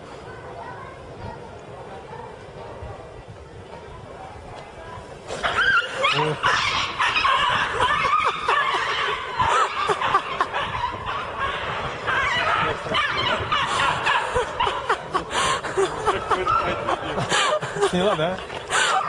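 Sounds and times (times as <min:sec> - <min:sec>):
person laughing: 0:14.2 - 0:19.0.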